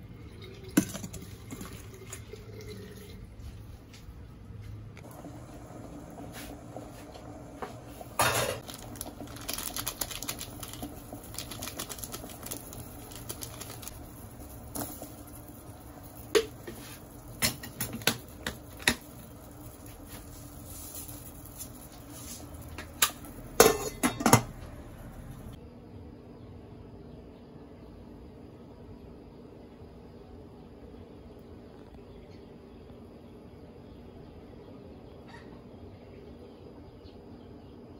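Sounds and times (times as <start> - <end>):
dishes and utensils clinking: 8.2 - 8.6, 22.7 - 24.8.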